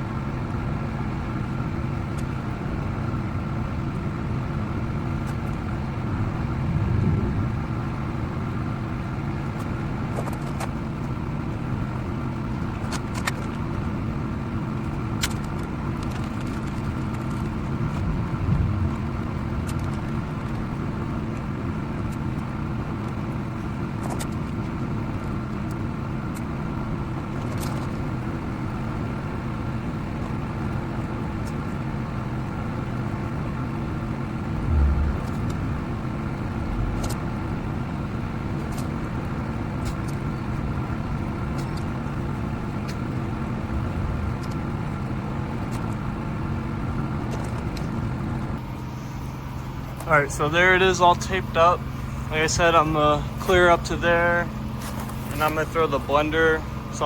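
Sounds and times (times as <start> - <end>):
low mechanical rumble: 0.0 - 57.0
low thumps: 6.0 - 8.6, 18.0 - 19.9, 34.5 - 37.6.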